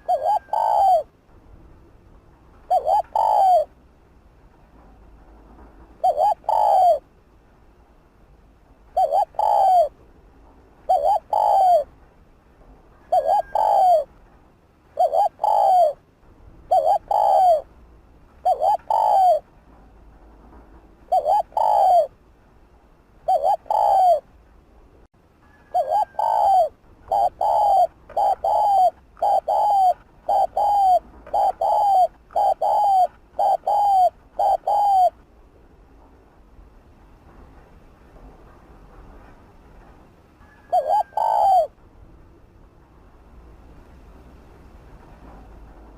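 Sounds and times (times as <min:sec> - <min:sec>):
dove cooing: 0:00.0 - 0:01.1, 0:02.6 - 0:03.8, 0:05.9 - 0:07.1, 0:08.9 - 0:10.0, 0:10.8 - 0:11.9, 0:13.0 - 0:14.1, 0:14.9 - 0:16.0, 0:16.7 - 0:17.7, 0:18.4 - 0:19.5, 0:21.1 - 0:22.2, 0:23.2 - 0:24.3, 0:25.5 - 0:35.2, 0:40.4 - 0:41.8.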